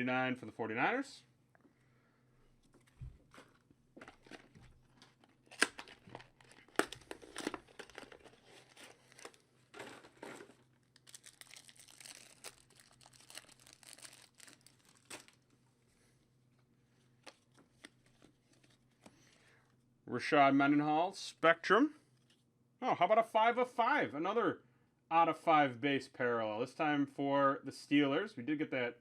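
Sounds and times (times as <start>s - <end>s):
wrappers crinkling and tearing: 4.2s - 15.5s.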